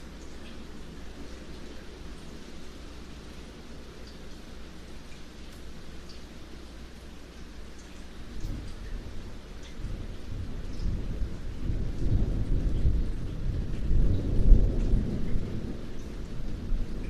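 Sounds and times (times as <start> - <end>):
rain falling: 0.0 - 17.0
thunder rolling: 9.8 - 17.0.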